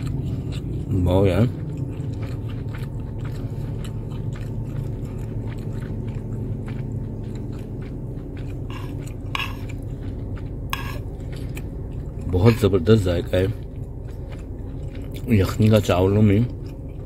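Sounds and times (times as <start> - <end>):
low hum: 0.0 - 17.0
person chewing food: 0.0 - 17.0
wet mouth clicks: 1.7 - 10.1.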